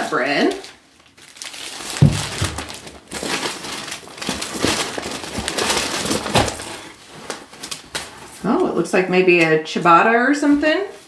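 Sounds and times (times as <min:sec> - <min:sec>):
packaging rustling and crinkling: 0:00.4 - 0:08.5.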